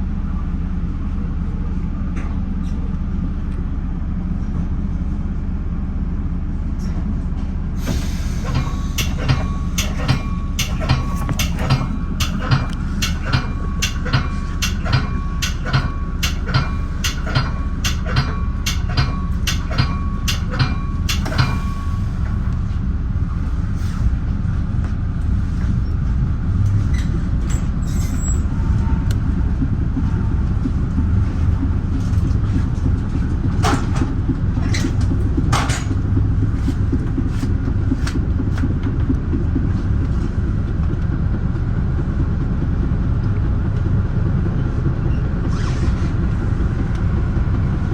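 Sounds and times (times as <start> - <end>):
train rumbling on rails: 0.0 - 47.9
bell ringing: 8.8 - 22.1.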